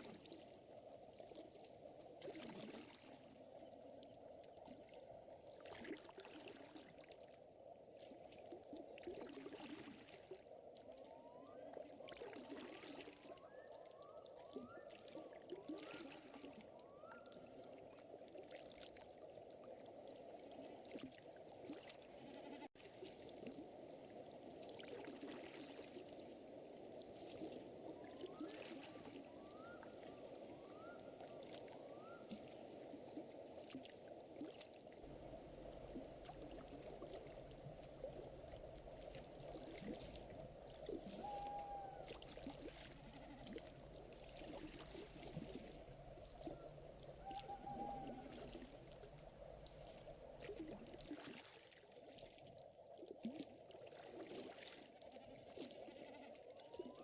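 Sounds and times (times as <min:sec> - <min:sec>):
water trickling: 0:00.0 - 0:57.0
rising animal calls: 0:47.2 - 0:48.5.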